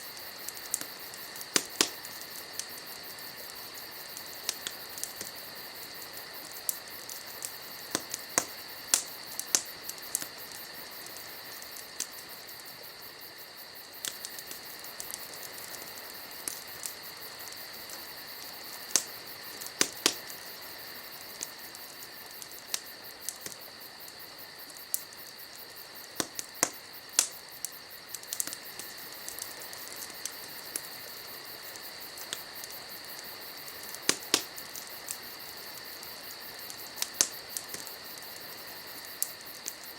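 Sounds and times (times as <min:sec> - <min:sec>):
campfire crackling and popping: 0:00.0 - 0:39.9
crickets chirring: 0:00.0 - 0:39.9.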